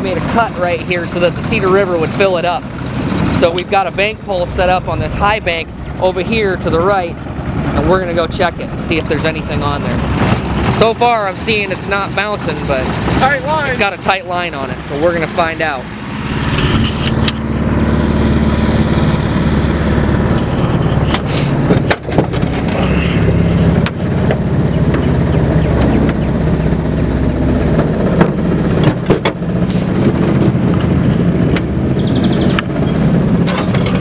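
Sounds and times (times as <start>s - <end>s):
boat motor running: 0.0s - 34.0s
sharp knocks: 20.4s - 26.3s.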